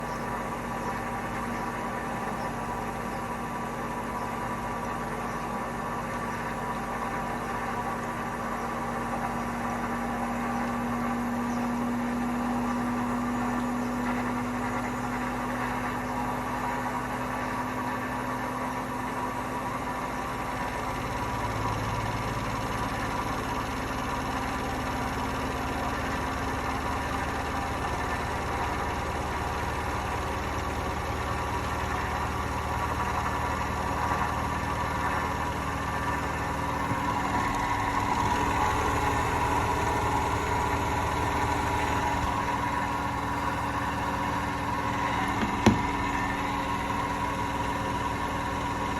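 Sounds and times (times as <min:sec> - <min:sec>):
humming tones from drum bearings: 0:00.0 - 0:48.9
washing machine spinning: 0:00.0 - 0:48.9.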